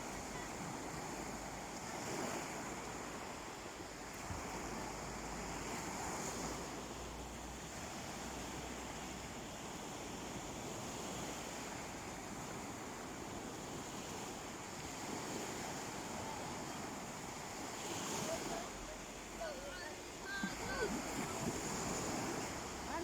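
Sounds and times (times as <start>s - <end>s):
sea waves washing onto beach: 0.0s - 23.0s
wind rumble on microphone: 20.3s - 23.0s.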